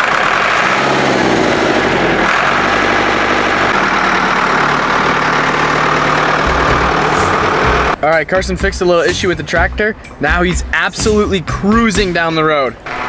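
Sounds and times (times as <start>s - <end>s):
tractor engine idling: 0.0s - 8.8s.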